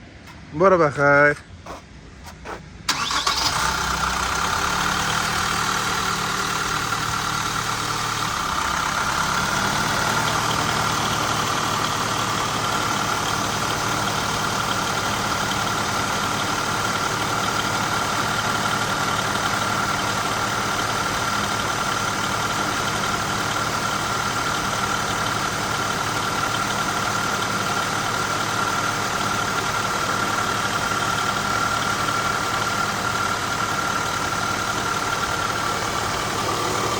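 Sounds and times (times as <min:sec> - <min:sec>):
van engine starting and idling: 0:01.6 - 0:36.9.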